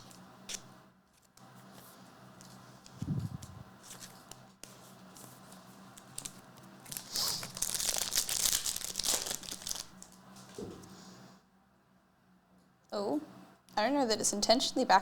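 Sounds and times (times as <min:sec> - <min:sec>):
wrapper tearing and crinkling: 0:06.0 - 0:10.2.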